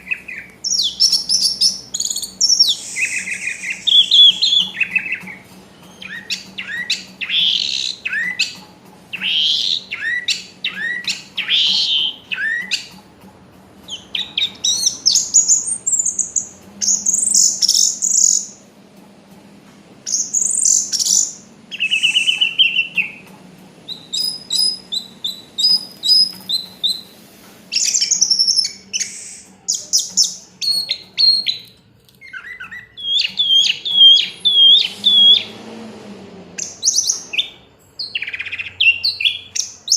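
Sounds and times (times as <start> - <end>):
thrush singing whistled phrases: 0.0 - 8.6, 9.2 - 12.9, 20.1 - 23.2, 23.9 - 27.1, 27.7 - 35.5.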